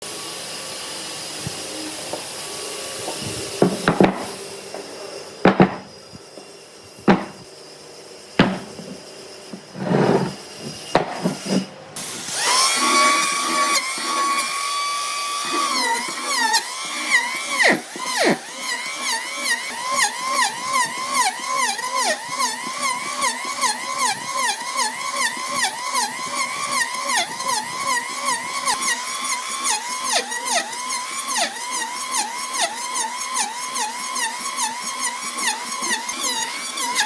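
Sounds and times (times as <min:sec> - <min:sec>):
power tool motor whine: 0:00.0 - 0:37.0
wood knocks and taps: 0:03.1 - 0:04.3, 0:05.5 - 0:05.9, 0:07.0 - 0:07.4, 0:08.4 - 0:09.6.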